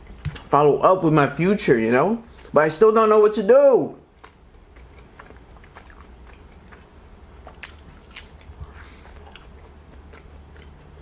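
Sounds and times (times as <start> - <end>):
person chewing food: 4.1 - 11.0
crunchy snaps: 4.2 - 11.0.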